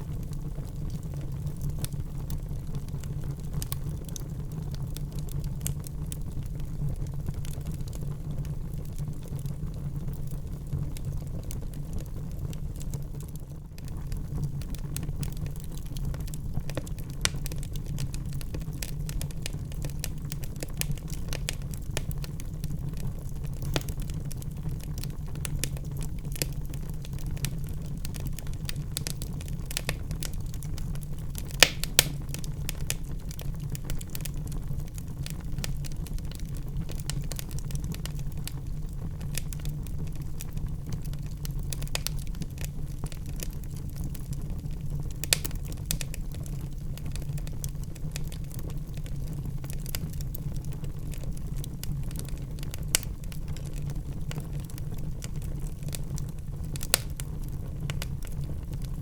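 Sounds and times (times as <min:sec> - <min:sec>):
fire crackling in fireplace: 0:00.0 - 0:59.0
sharp pops from fire: 0:14.1 - 0:39.8, 0:40.4 - 0:43.8, 0:45.0 - 0:49.1, 0:56.2 - 0:58.3.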